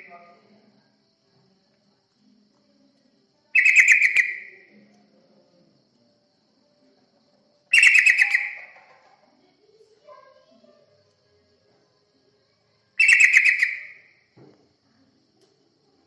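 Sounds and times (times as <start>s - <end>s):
bird chattering call: 3.6s - 4.6s, 7.7s - 8.9s, 13.0s - 13.9s.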